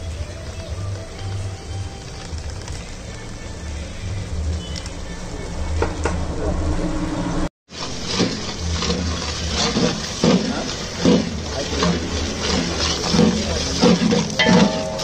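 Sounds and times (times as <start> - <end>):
masala frying in oil: 0.0 - 6.3, 7.7 - 15.0
spatula scraping a metal pot: 7.8 - 15.0.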